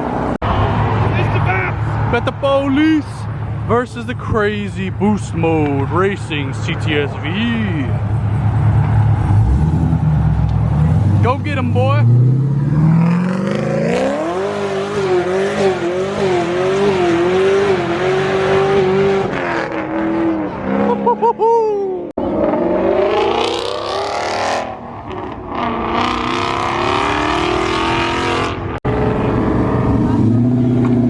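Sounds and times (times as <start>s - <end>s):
car engine accelerating hard: 22.2s - 31.0s.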